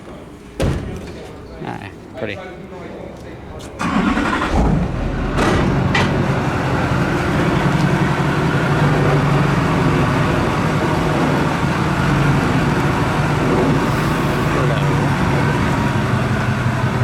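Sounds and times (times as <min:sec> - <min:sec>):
vehicle engine running: 0:03.9 - 0:17.0.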